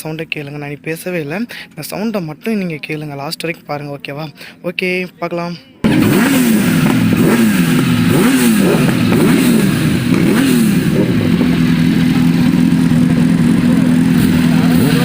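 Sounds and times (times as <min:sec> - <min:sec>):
motorcycle engine revving: 0:05.8 - 0:15.0.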